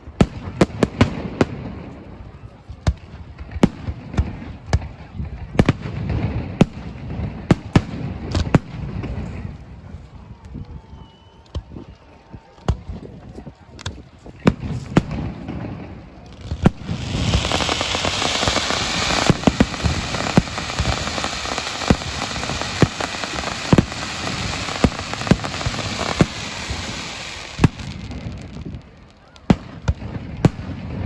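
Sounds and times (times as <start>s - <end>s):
fireworks crackling hiss: 13.8s - 31.0s
firework shells bursting: 16.4s - 28.8s.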